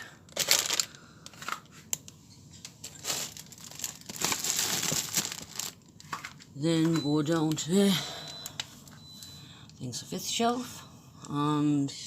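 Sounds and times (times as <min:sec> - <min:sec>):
plastic packets crinkling: 0:00.3 - 0:07.7.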